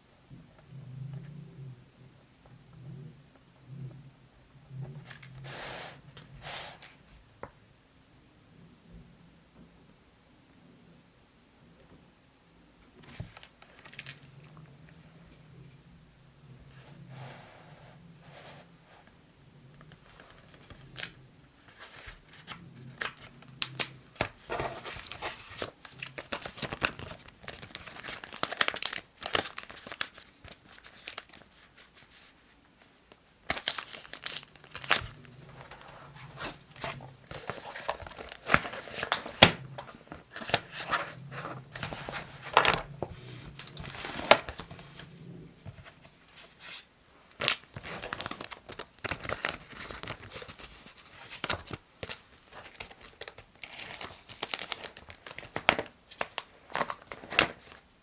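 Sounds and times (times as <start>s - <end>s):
paper and stickers rustling: 13.0s - 15.0s, 19.8s - 57.8s.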